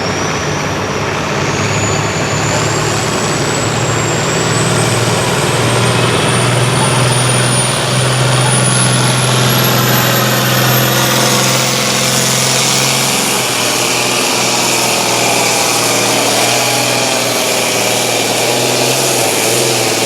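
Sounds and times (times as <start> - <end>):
tractor engine at high revs: 0.0 - 20.0.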